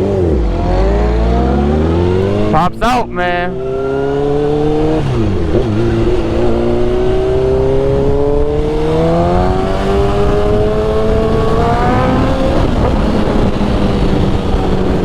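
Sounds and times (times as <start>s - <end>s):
motorcycle engine accelerating: 0.0s - 15.0s
wind rush: 3.5s - 15.0s.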